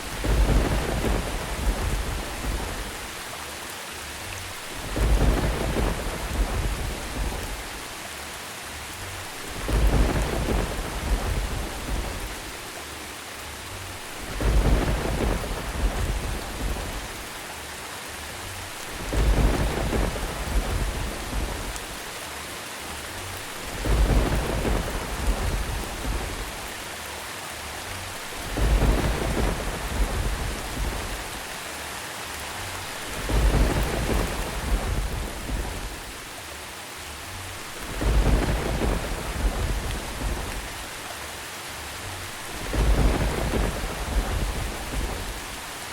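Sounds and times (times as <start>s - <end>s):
thunder rumbling: 0.0s - 3.2s, 4.6s - 7.9s, 9.2s - 12.6s, 13.9s - 17.4s, 18.6s - 22.2s, 23.4s - 26.8s, 28.0s - 31.6s, 32.7s - 36.3s, 37.5s - 41.0s, 42.2s - 45.9s
steady rain: 0.0s - 45.9s.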